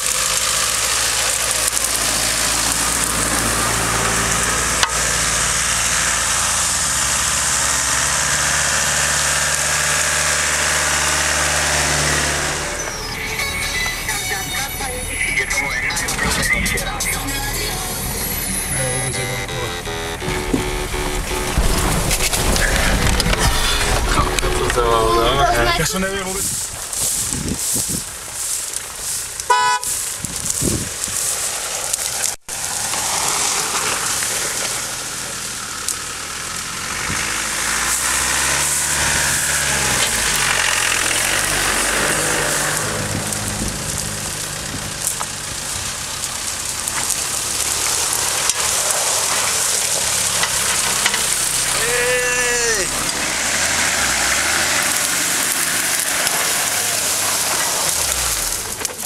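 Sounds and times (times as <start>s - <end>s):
truck engines running at low revs: 0.0s - 59.0s
person shouting: 25.0s - 25.9s, 51.7s - 53.0s.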